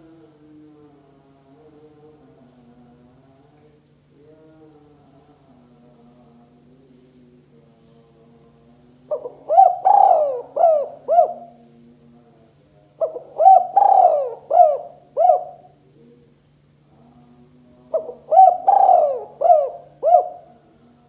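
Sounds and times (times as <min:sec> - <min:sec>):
faint steady low hum: 0:00.0 - 0:21.0
dove cooing: 0:09.1 - 0:11.6, 0:13.0 - 0:16.0, 0:17.8 - 0:20.6.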